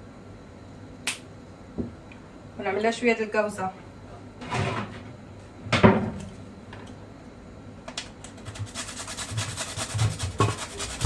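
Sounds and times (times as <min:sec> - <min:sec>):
kitchen utensil scraping: 0:08.6 - 0:11.0.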